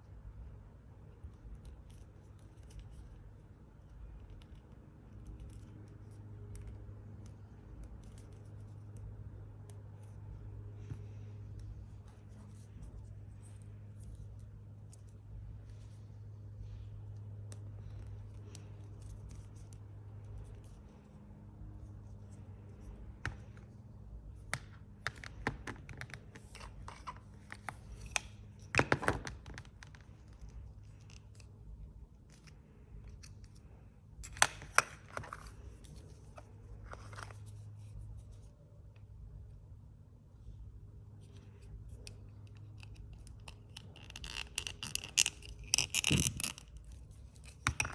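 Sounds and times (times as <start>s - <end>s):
low steady hum: 0.0s - 47.9s
scratchy handling noises: 1.2s - 38.8s.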